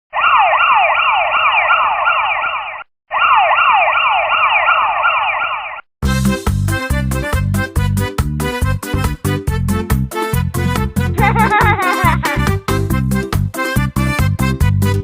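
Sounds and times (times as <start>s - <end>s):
police siren: 0.1s - 5.9s
music: 6.0s - 15.0s.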